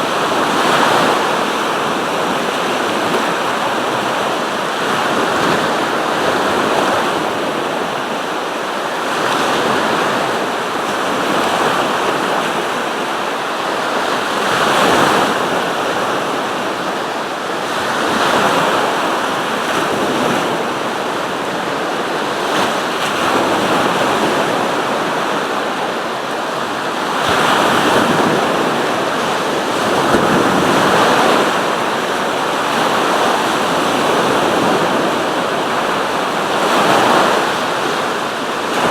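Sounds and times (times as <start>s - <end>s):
waves breaking on shore: 0.0s - 38.9s.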